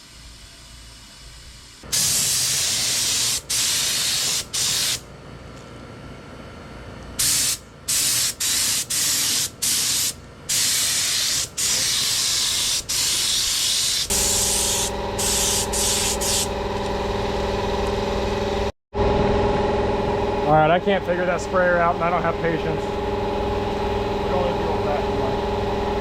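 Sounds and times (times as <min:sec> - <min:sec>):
paint spray gun hissing: 0:01.9 - 0:05.0, 0:07.2 - 0:17.0
motor humming: 0:12.5 - 0:26.0.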